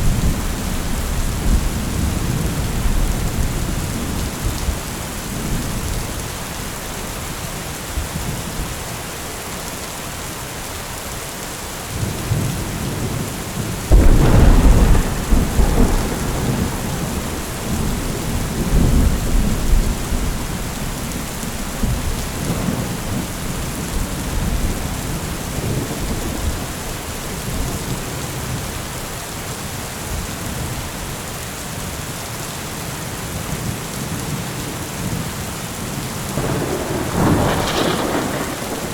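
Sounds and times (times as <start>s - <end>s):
steady rain falling: 0.0s - 38.9s
thunderclap rumbling: 12.3s - 28.5s, 36.3s - 38.9s.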